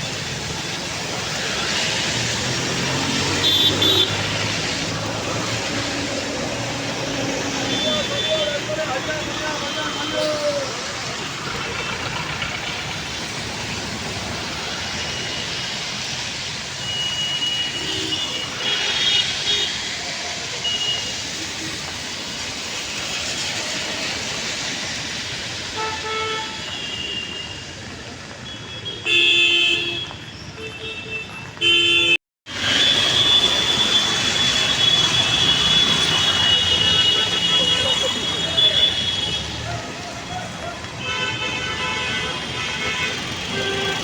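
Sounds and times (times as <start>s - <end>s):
traffic hiss: 0.0s - 30.2s, 32.5s - 44.0s
vehicle horns tooting: 3.0s - 4.5s, 7.5s - 10.8s, 16.8s - 20.0s, 28.4s - 44.0s.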